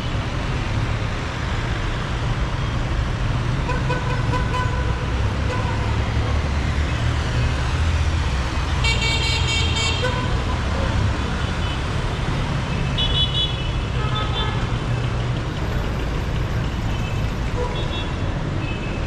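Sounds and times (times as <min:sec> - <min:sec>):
traffic engines rumbling: 0:00.0 - 0:19.0.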